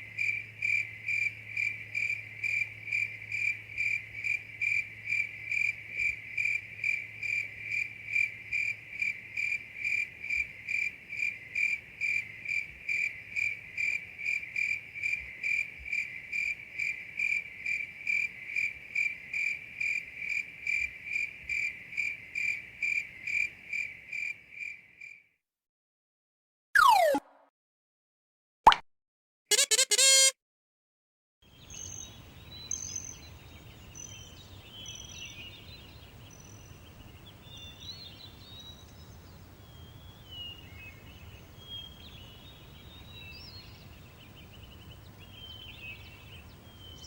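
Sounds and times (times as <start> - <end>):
cricket chirping: 0.1 - 24.8.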